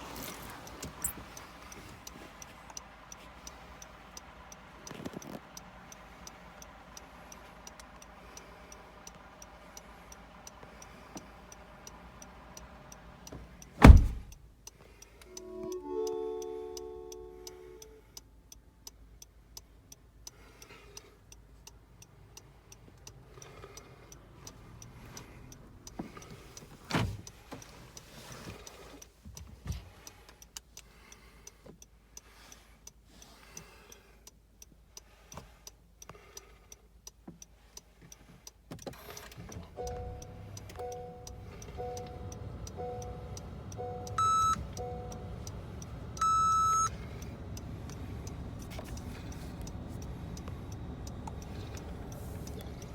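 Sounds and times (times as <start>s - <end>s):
faint regular ticking: 0.2s - 16.2s, 16.8s - 52.9s
two-tone electronic beep: 40.8s - 45.3s, 46.2s - 46.9s
electronic chime: 43.8s - 45.1s.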